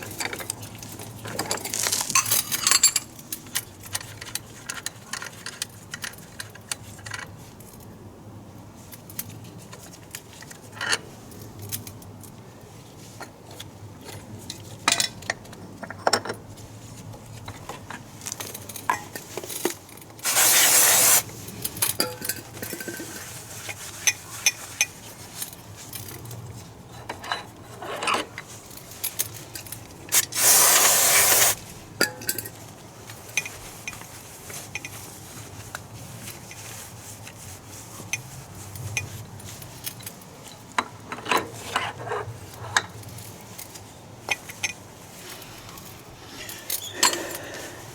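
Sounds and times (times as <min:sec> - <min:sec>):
metal tools clinking: 0:01.2 - 0:03.2
loud hissing bursts: 0:20.2 - 0:21.3, 0:30.1 - 0:31.6.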